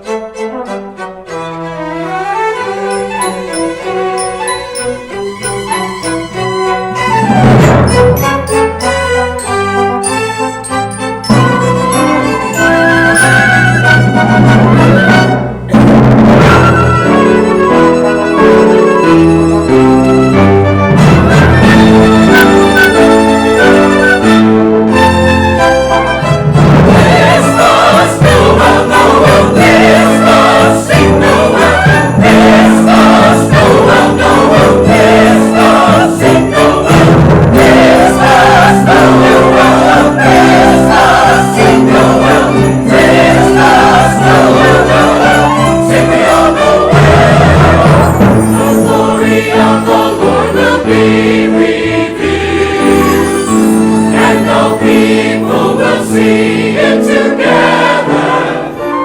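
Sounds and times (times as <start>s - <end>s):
orchestra accompaniment: 0.0s - 59.0s
church choir singing: 2.9s - 7.2s, 7.8s - 15.8s, 25.6s - 59.0s.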